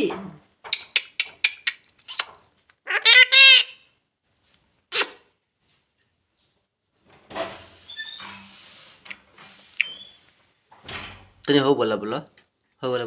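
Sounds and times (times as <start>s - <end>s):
parrot calling: 2.9s - 3.8s.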